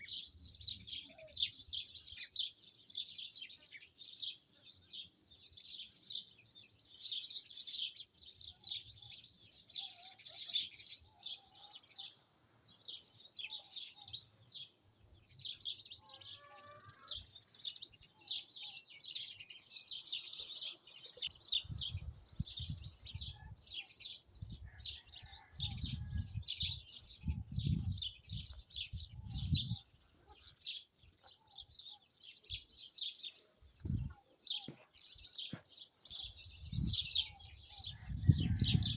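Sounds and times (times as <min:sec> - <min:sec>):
small birds chirping: 0:00.0 - 0:38.9
wind rumbling on microphone: 0:21.5 - 0:23.7, 0:24.3 - 0:29.9, 0:33.7 - 0:34.2, 0:36.3 - 0:38.9.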